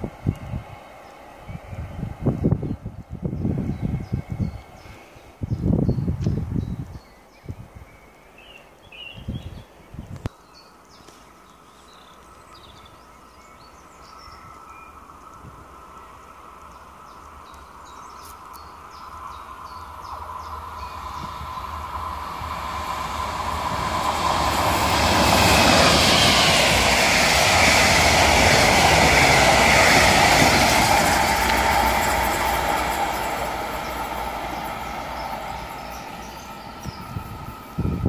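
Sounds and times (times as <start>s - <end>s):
high train whine: 0.0s - 7.6s, 13.0s - 38.0s
train wheels rumbling on rails: 15.2s - 38.0s.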